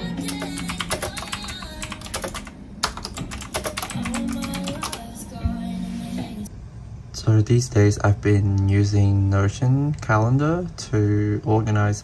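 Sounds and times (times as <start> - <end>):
soft background music: 0.0 - 2.5, 3.7 - 6.5
mechanical keyboard typing: 0.2 - 5.0.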